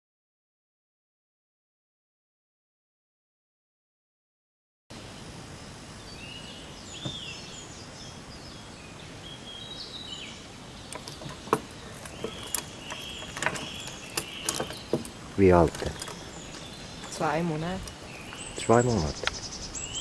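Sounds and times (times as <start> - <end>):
outdoor hiss: 4.9 - 20.0
birds chirping and singing: 6.0 - 20.0
sharp clicks and knocks: 10.9 - 18.4.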